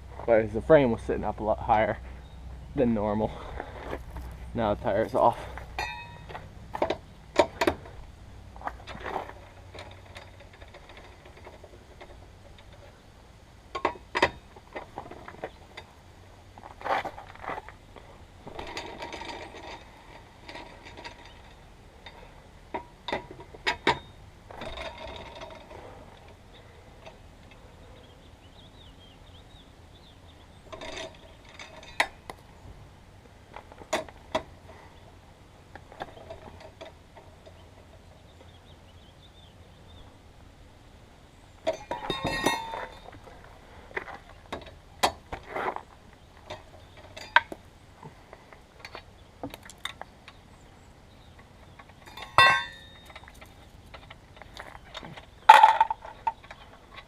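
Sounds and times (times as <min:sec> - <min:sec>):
wheel hardware knocks: 0:03.3 - 0:08.0, 0:13.7 - 0:15.9, 0:18.4 - 0:26.4, 0:41.6 - 0:43.3, 0:44.0 - 0:48.2, 0:51.6 - 0:57.0
metallic clinks of tools: 0:05.8 - 0:06.3.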